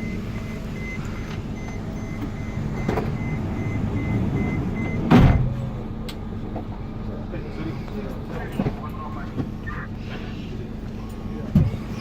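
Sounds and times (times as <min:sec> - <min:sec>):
electronic warning beeps: 0:00.0 - 0:05.1
loud thump: 0:05.1 - 0:05.6.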